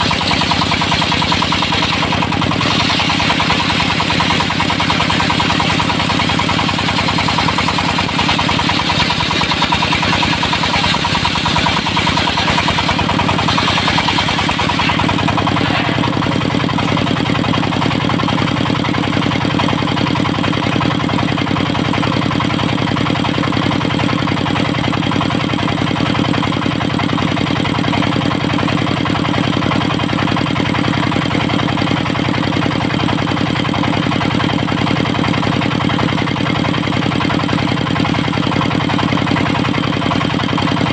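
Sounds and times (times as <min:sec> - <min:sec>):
saw hissing through log: 0:00.0 - 0:16.4
diesel engine running: 0:00.0 - 0:40.9.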